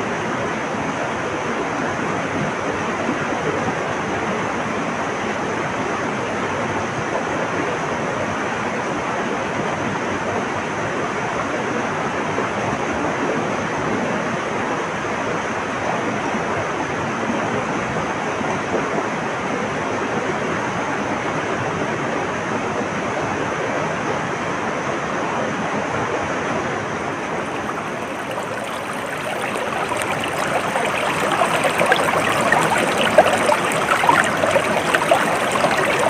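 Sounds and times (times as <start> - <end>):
flowing water rushing: 27.0 - 36.0.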